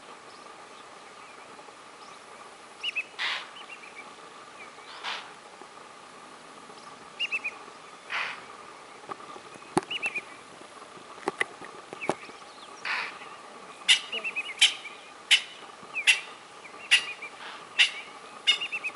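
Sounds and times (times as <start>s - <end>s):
quick bird chirps: 13.8s - 18.9s.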